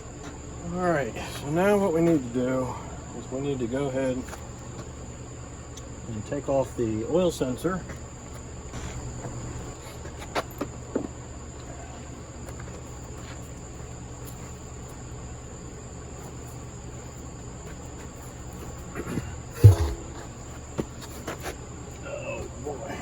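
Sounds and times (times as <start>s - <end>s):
low background hum: 0.0s - 23.0s
high-pitched whine: 19.5s - 20.5s.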